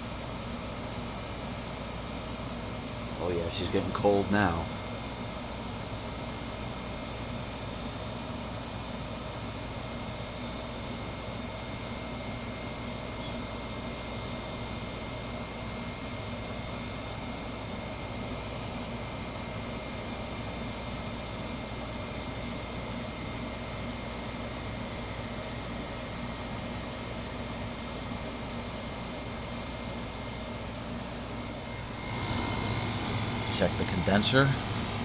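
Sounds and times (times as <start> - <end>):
air conditioner humming: 0.0 - 10.3, 23.6 - 35.0
faint high whine: 26.9 - 35.0.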